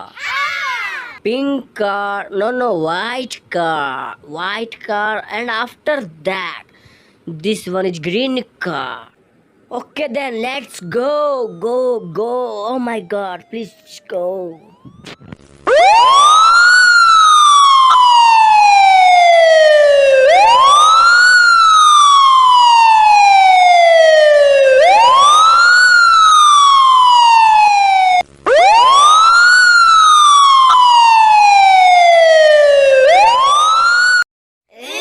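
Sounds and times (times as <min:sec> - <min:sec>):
wailing siren: 0:10.3 - 0:34.3.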